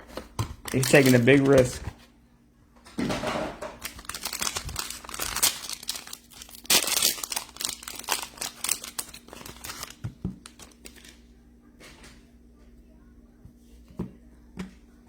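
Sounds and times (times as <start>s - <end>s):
plastic wrapping crinkling and tearing: 0.7s - 1.8s, 3.7s - 11.2s.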